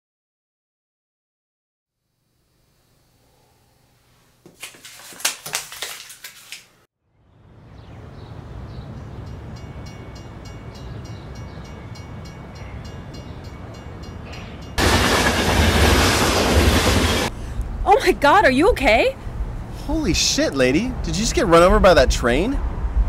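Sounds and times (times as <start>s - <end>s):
light-rail trolley rumble: 7.6s - 23.0s.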